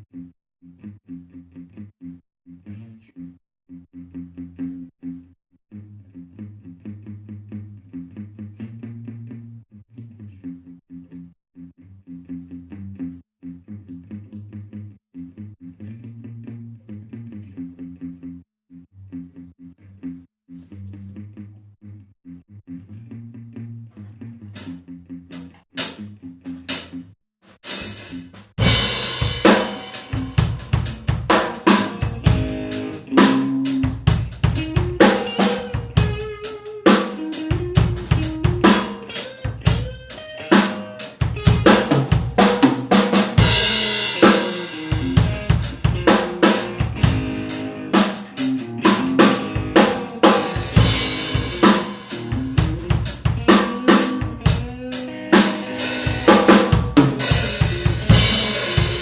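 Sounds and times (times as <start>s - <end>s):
drum kit playing a beat: 25.3s - 26.0s, 26.6s - 27.0s, 27.6s - 59.0s
guitar melodic lines: 28.6s - 59.0s.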